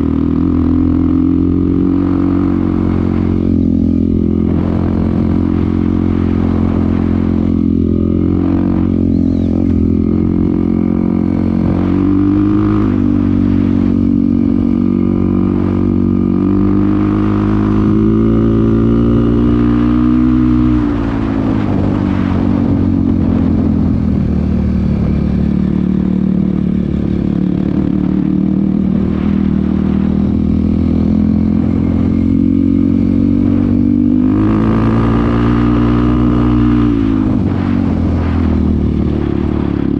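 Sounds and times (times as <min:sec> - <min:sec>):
dirt bike engine revving: 0:00.0 - 0:24.7, 0:25.3 - 0:39.9.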